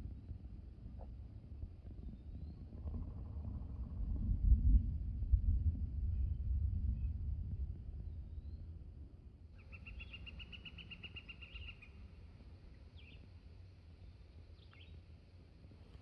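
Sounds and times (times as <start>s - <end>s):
low wind rumble: 0.0s - 16.0s
bird chirps: 9.6s - 12.0s
songbird trilling: 9.6s - 12.0s.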